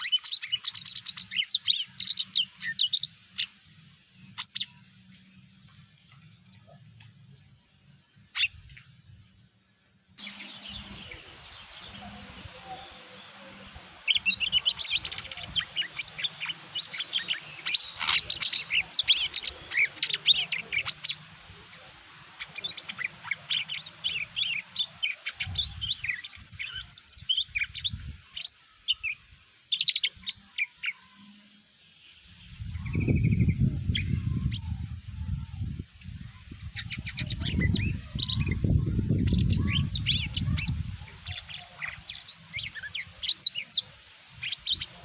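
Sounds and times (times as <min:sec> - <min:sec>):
bird singing chirps and whistles: 0:14.0 - 0:21.2.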